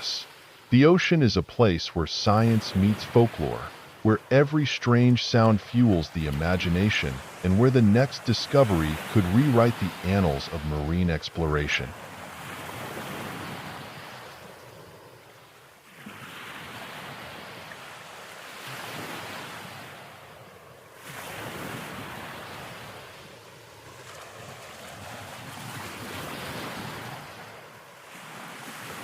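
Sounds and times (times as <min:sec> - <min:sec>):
ocean waves washing: 0:00.0 - 0:29.0.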